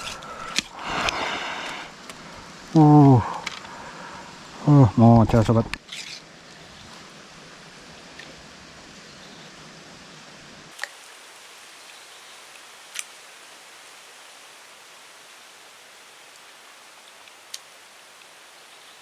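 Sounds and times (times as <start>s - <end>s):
rain falling: 0.0s - 5.8s, 10.7s - 19.0s.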